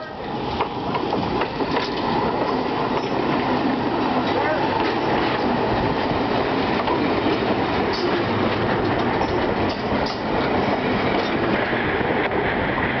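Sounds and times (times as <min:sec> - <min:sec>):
steel wheels rumbling on rails: 0:00.0 - 0:13.0
clicks from rail joints: 0:00.6 - 0:03.2, 0:06.8 - 0:10.5.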